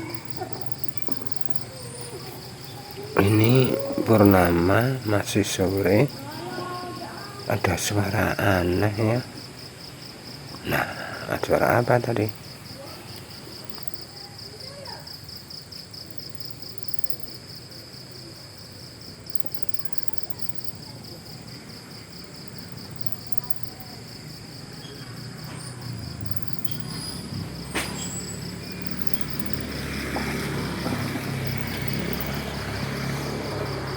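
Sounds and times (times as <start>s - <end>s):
vehicle engine rumble: 0.0s - 6.9s, 19.1s - 33.9s
insects chirring: 0.0s - 33.9s.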